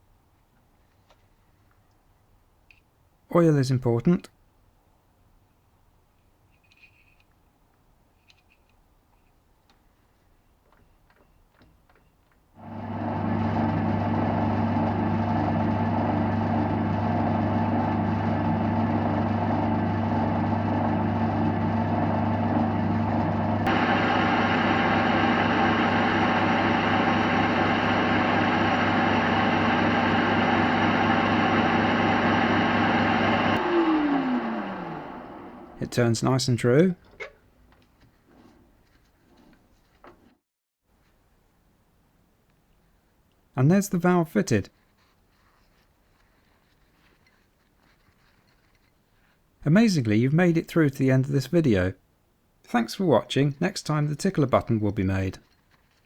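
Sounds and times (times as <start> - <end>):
lathe humming: 12.6 - 36.0.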